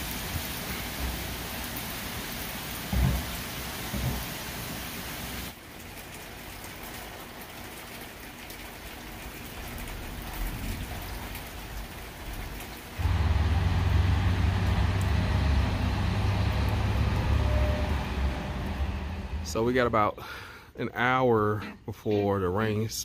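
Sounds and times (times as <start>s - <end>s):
rain falling on pavement: 0.0s - 19.6s
loud low rumble: 13.0s - 19.9s.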